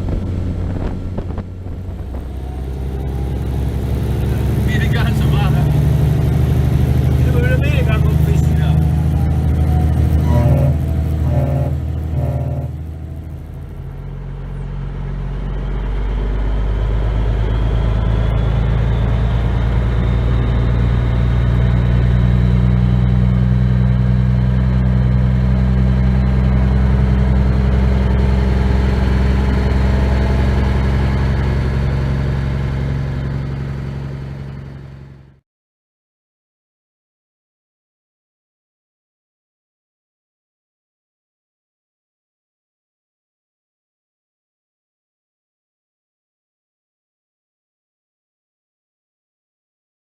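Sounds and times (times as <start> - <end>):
truck diesel engine under load: 0.0 - 35.4
faint whine: 7.0 - 35.3.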